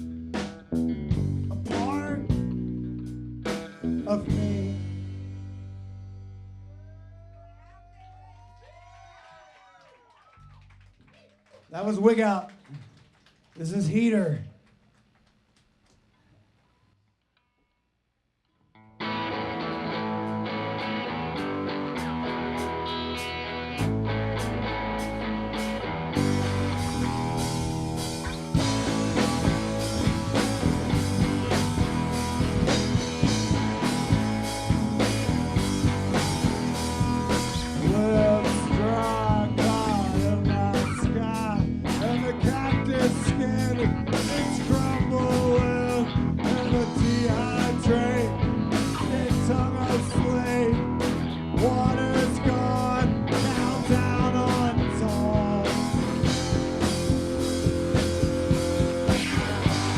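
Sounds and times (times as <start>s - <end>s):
rock band playing: 0.0s - 6.7s, 18.9s - 59.9s
electric guitar bending lines: 19.0s - 59.9s.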